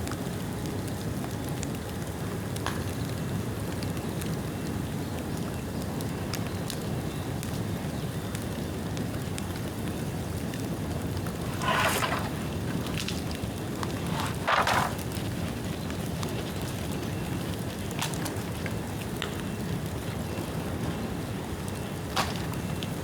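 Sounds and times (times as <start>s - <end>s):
fire crackling: 9.0s - 23.0s
bonfire flames rushing: 9.9s - 23.0s.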